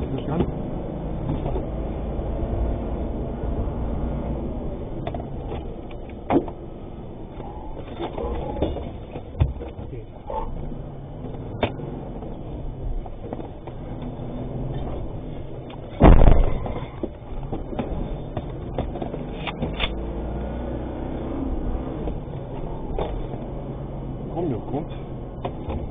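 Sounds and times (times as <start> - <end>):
truck engine and road rumble: 0.0 - 25.9
heavy thump: 15.9 - 18.5.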